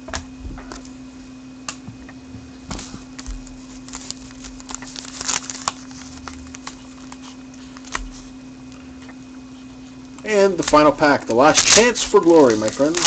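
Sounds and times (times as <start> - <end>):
low electrical hum: 0.0 - 13.0
cards and wrapper rustling: 2.8 - 8.2, 10.1 - 13.0.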